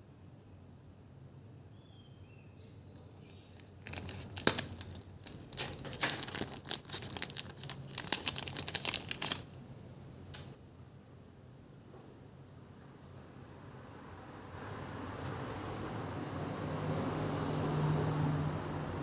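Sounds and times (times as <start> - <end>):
crinkling and rustling: 3.0 - 9.7, 10.3 - 10.6.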